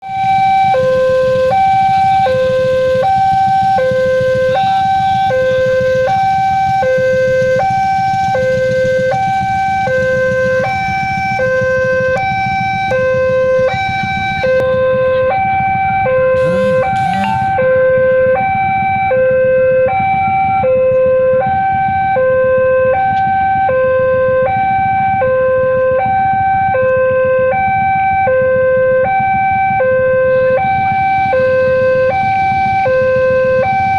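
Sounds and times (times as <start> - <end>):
two-tone electronic warning signal: 0.0 - 33.9.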